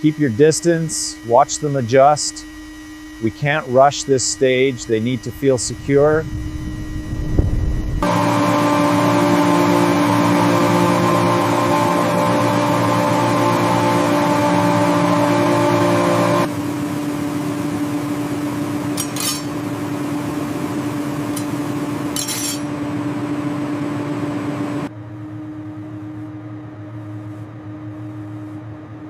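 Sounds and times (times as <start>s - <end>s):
mechanical hum: 0.0s - 29.0s
short clinks: 19.0s - 19.5s, 22.2s - 22.6s.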